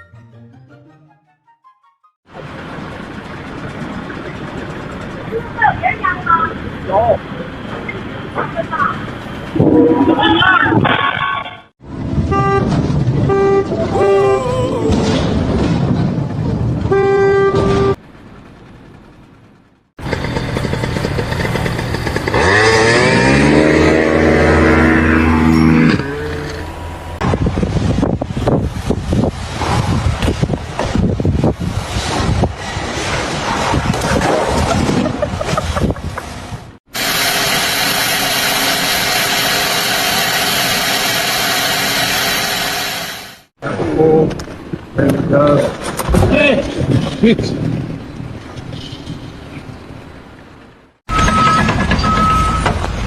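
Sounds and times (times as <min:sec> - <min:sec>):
vehicle horn: 0:12.2 - 0:14.3, 0:16.8 - 0:18.0
engine revving: 0:20.0 - 0:27.4
motor running with loud hiss: 0:37.0 - 0:43.4.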